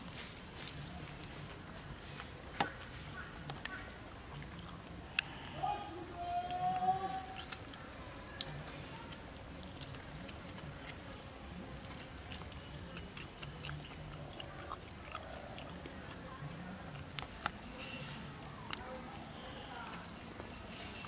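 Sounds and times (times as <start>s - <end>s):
chewing and biting meat: 0.0s - 5.6s, 6.4s - 21.0s
wet mouth clicks and smacks: 7.4s - 11.0s.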